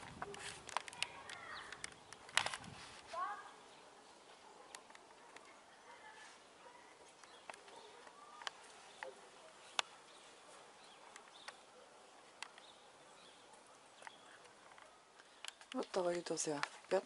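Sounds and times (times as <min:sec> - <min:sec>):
bird chirps: 0:07.2 - 0:16.4.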